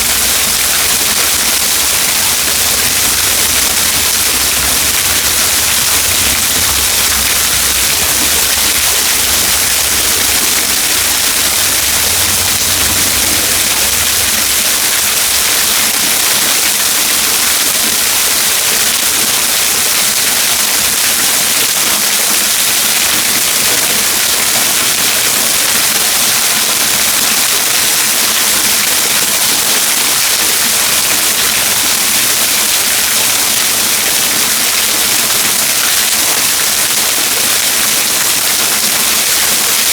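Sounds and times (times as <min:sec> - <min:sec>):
low rumble: 0:00.0 - 0:15.9
waterfall rushing: 0:00.0 - 0:39.9.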